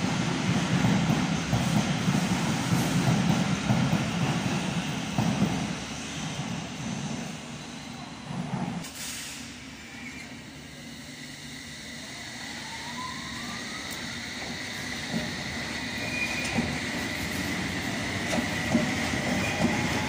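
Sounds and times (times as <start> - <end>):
train rumbling past: 0.0 - 20.0
underground train rumbling: 0.0 - 20.0
train motor whine rising: 9.6 - 18.3.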